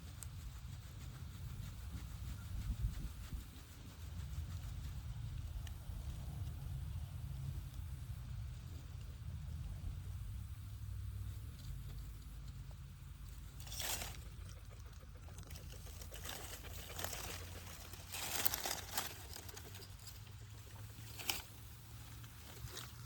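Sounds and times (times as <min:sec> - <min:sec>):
low steady rumble: 0:00.0 - 0:23.0
dry leaves rustling: 0:13.1 - 0:23.0.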